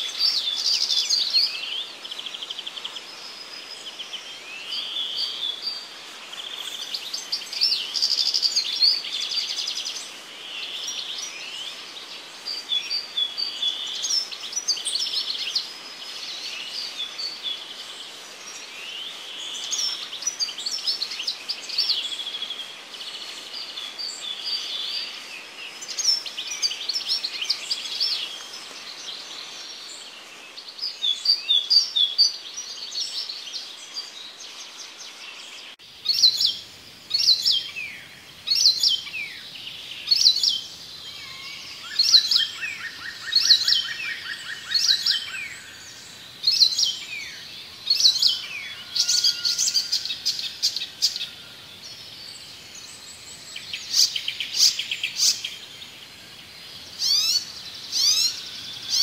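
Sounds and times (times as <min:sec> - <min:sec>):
faint outdoor background noise: 0:00.0 - 0:59.0
songbirds chirping and trilling: 0:00.0 - 0:59.0.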